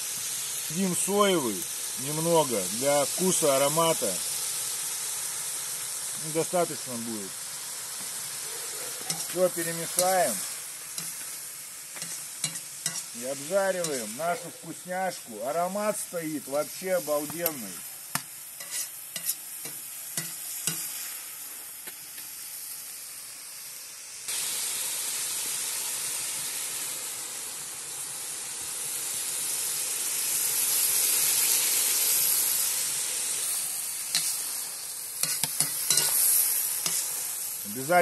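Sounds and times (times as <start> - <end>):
liver and onions sizzling: 0.0 - 38.0
metal utensil scraping pot: 9.0 - 10.2, 12.0 - 13.2, 18.6 - 19.4, 35.2 - 36.2.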